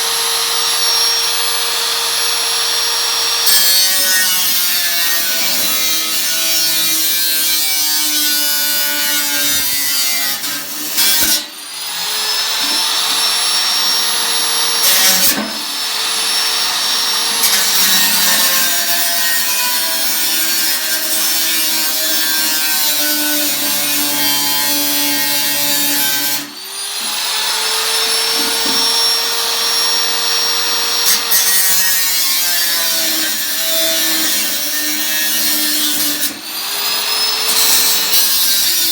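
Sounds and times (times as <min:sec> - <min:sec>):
power tool cutting sheet metal: 0:00.0 - 0:38.9.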